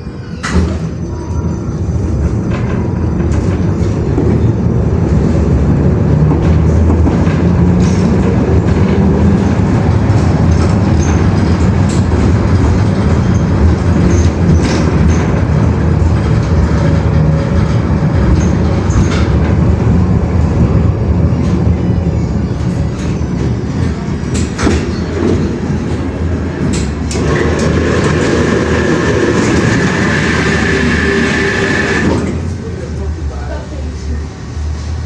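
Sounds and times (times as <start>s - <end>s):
train rumbling: 0.0s - 35.0s
steady high whine: 27.1s - 32.4s.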